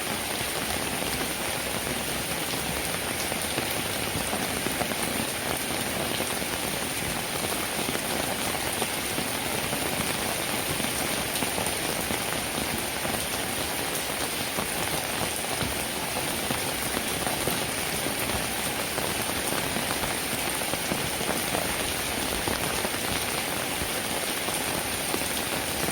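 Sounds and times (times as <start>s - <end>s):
steady rain patter: 0.0s - 25.9s.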